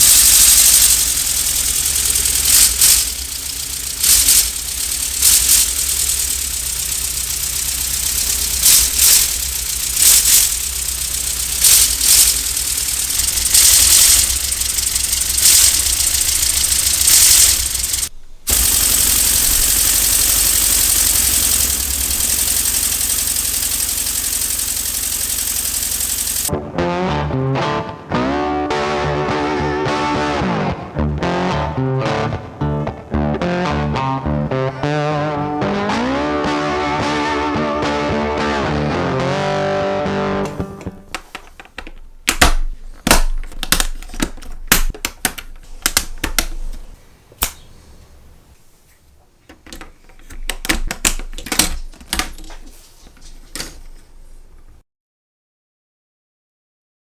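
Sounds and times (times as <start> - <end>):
hiss of exhausting air: 0.0 - 26.5
pneumatic engine running: 0.0 - 26.5, 40.4 - 48.5, 49.5 - 54.8
sharp clicks and knocks: 0.0 - 26.5, 40.4 - 47.7, 49.4 - 54.8.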